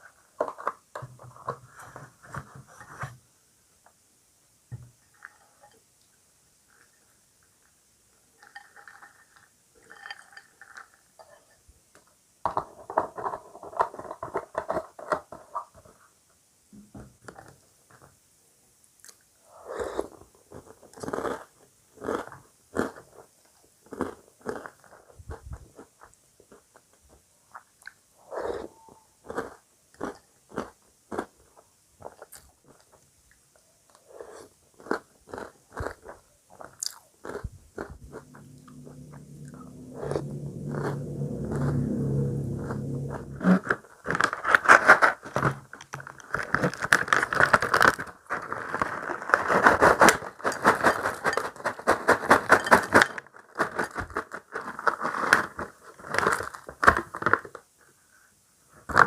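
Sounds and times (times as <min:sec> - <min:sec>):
crunchy cereal being chewed: 0:08.4 - 0:11.5, 0:19.0 - 0:38.4, 0:45.8 - 0:57.6.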